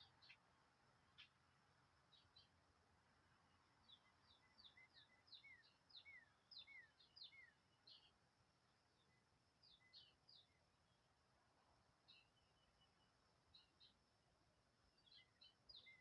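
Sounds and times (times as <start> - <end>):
songbird chirping: 0.0 - 16.0.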